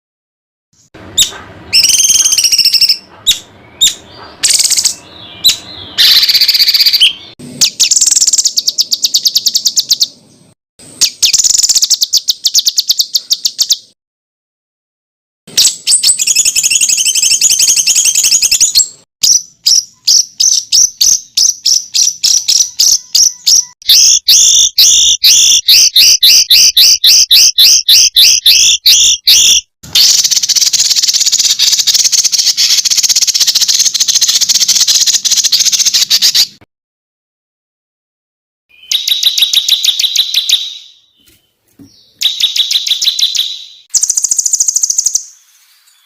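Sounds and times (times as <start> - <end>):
songbird trilling song: 1.2 - 14.0, 15.5 - 36.6, 38.7 - 46.0.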